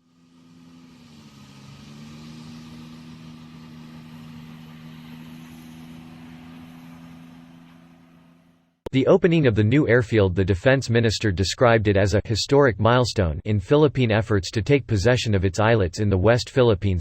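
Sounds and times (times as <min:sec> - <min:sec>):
engine drone: 0:00.0 - 0:11.2.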